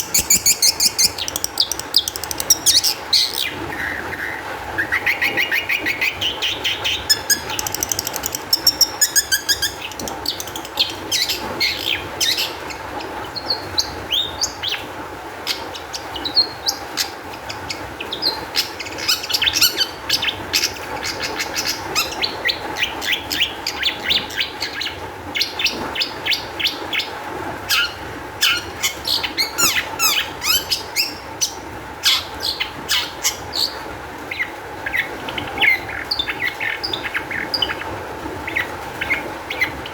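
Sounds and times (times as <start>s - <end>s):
shrike singing chattering song: 0.0s - 3.6s, 7.0s - 12.4s.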